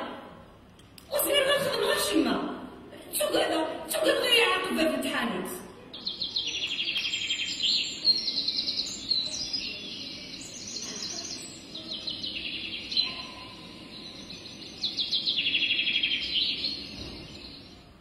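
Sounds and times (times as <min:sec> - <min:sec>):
birds chirping in trills: 0:05.9 - 0:18.0.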